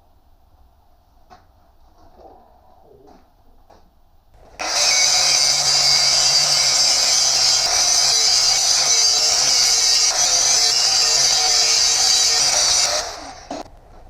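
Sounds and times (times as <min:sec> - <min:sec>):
power tool on steel plate: 0:04.4 - 0:13.7.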